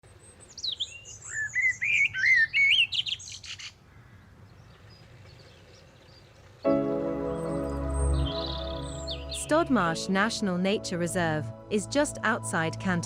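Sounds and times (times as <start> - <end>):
songbird singing whistled notes: 0.2 - 3.7, 7.3 - 10.0
music: 6.7 - 13.0.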